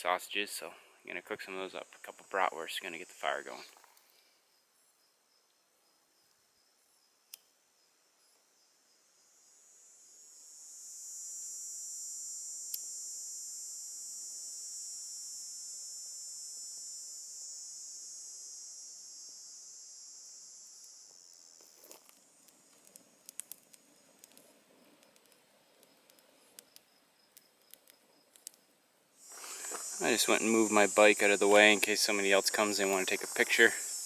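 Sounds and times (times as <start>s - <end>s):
cicada buzzing: 0.6s - 7.2s, 8.6s - 28.6s, 29.2s - 34.0s
sharp clicks: 22.4s - 28.6s.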